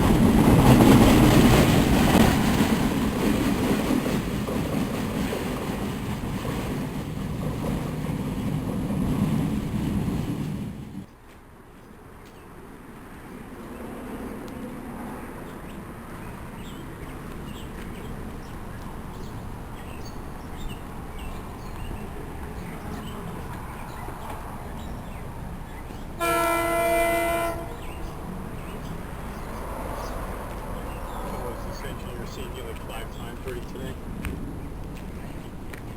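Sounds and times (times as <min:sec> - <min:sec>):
train rumbling: 0:00.0 - 0:11.1, 0:13.0 - 0:35.9
train horn blast: 0:26.2 - 0:27.9.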